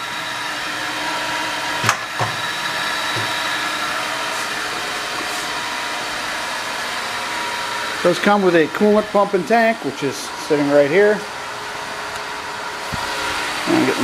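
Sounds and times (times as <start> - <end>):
grinder spindle humming and whining: 0.0 - 14.0.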